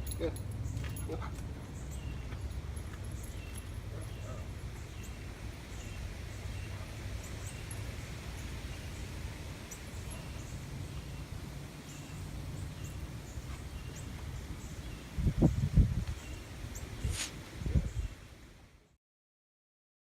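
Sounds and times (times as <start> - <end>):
wind rumble on microphone: 12.9 - 18.4.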